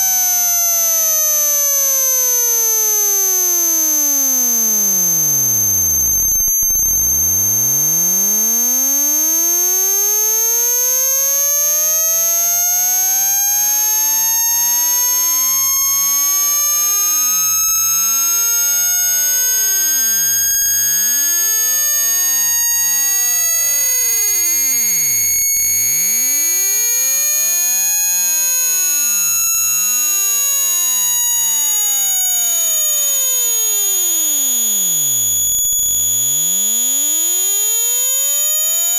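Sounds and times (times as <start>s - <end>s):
high-pitched whine: 0.0s - 14.8s
sine tone frequency sweep: 0.0s - 38.9s.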